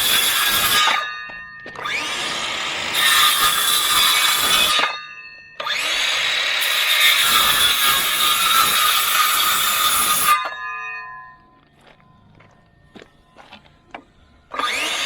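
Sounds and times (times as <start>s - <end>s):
power saw cutting wood: 0.0s - 1.1s, 1.7s - 5.0s, 5.6s - 10.6s, 14.5s - 15.0s.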